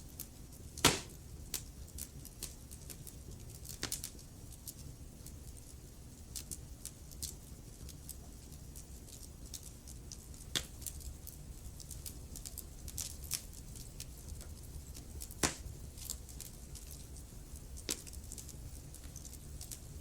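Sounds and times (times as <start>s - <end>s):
low rumble of flames: 0.0s - 20.0s
wood fire crackling: 0.0s - 20.0s
loud fire pops: 0.8s - 1.7s, 15.2s - 15.8s.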